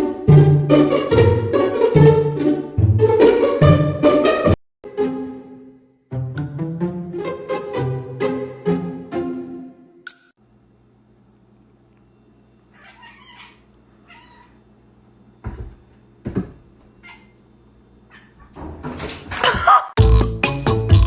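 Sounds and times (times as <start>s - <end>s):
cat meowing: 12.7s - 14.6s, 17.0s - 17.4s
music with regular beat: 20.0s - 21.0s.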